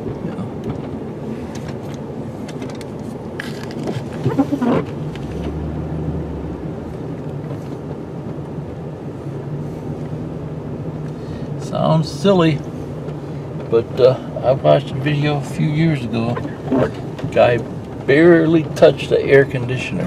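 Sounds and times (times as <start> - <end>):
truck engine running in cab: 0.0 - 20.0
short rising squeal: 4.2 - 4.9.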